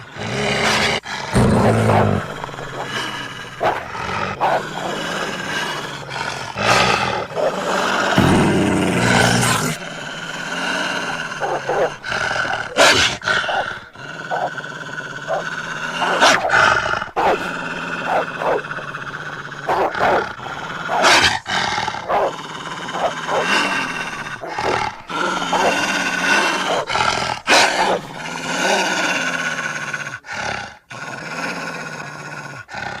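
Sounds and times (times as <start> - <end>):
wolf and dog growls: 0.0 - 33.0.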